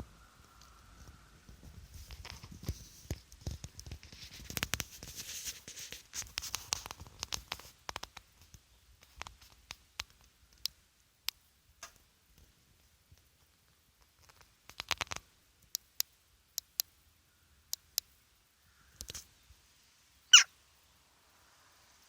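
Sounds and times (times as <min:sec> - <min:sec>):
clicks and taps in chimney: 0:06.2 - 0:12.1.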